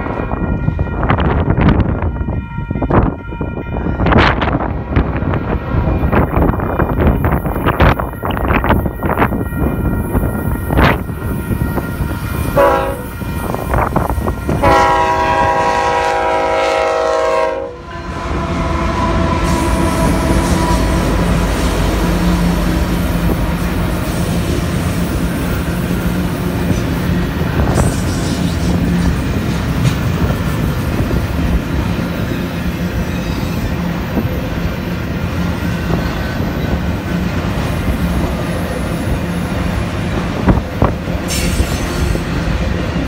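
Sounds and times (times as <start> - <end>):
train rolling noise: 0.0 - 43.0
locomotive engine tone: 5.8 - 27.9
locomotive air horn: 8.2 - 24.4.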